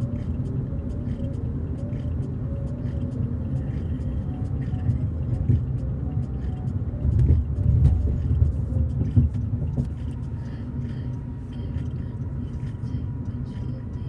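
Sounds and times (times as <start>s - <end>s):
low rumble inside a car: 0.0s - 14.0s.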